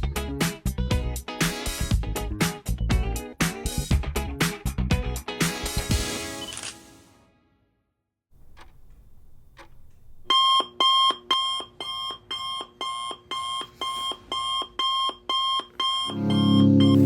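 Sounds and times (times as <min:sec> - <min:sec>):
alarm clock beeping: 0:09.6 - 0:17.0.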